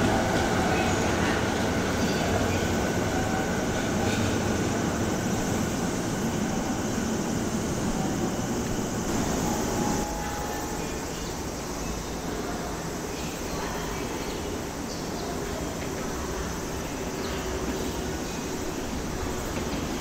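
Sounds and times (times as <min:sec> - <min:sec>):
distant train rumble: 0:00.0 - 0:13.1.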